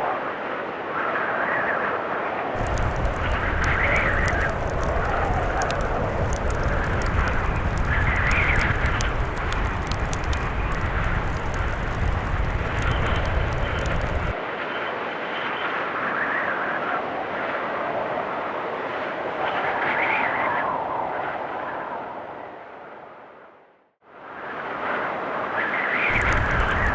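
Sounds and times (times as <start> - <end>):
blizzard wind gusting: 2.6 - 14.4, 26.1 - 26.9
fire crackling: 2.6 - 14.4, 26.1 - 26.9.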